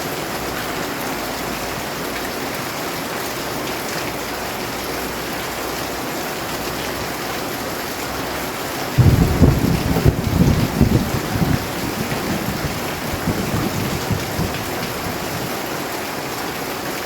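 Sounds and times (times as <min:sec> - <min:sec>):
heavy rain: 0:00.0 - 0:17.0
thunder rumbling: 0:09.0 - 0:15.7.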